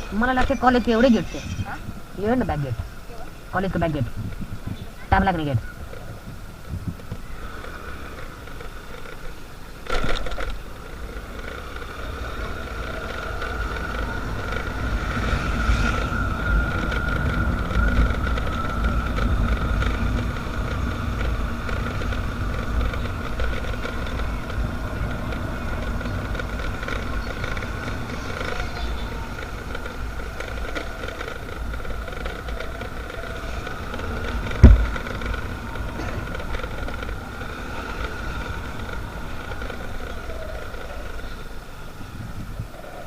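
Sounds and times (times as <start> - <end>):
motorcycle engine and wind: 0.0 - 43.0
sharp thump: 34.6 - 34.9.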